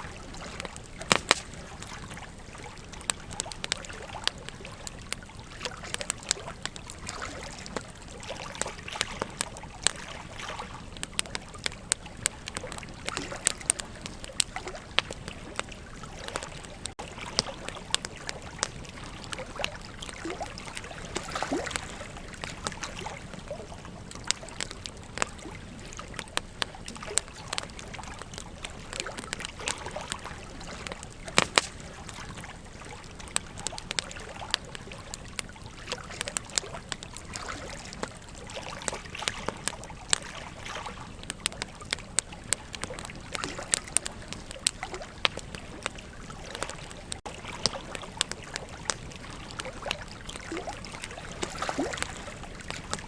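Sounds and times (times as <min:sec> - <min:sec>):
campfire crackling and popping: 0:00.0 - 0:53.0
river water flowing: 0:00.0 - 0:53.0.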